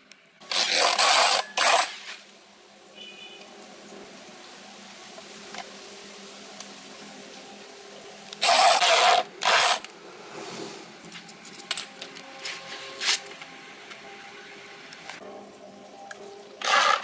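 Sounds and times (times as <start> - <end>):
electric drill driving screws: 0.5 - 2.2, 8.4 - 9.9, 16.6 - 17.0.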